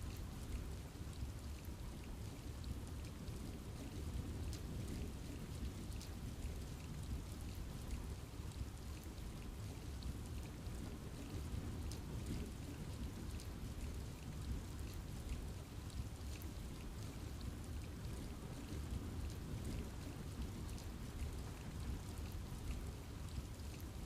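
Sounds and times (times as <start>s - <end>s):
raindrops ticking close by: 0.0s - 24.0s
steady rain in forest: 0.0s - 24.0s.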